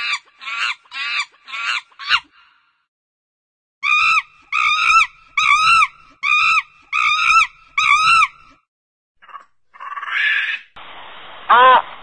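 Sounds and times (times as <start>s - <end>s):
animal crying out: 9.2s - 10.7s, 11.5s - 11.8s.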